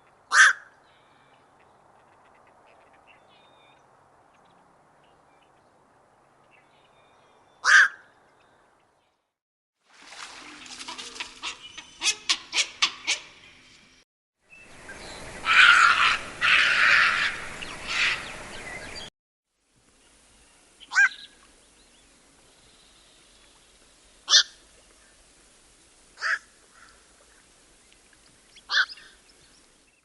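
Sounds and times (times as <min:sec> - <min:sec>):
heron harsh calls: 0:00.3 - 0:00.7, 0:07.6 - 0:08.0, 0:15.4 - 0:18.2, 0:26.2 - 0:26.9.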